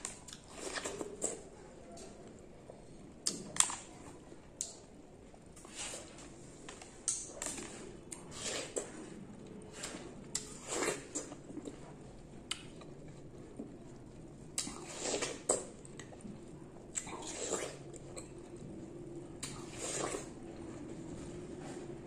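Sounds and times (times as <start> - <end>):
watermelon bitten and chewed: 0.0 - 21.2.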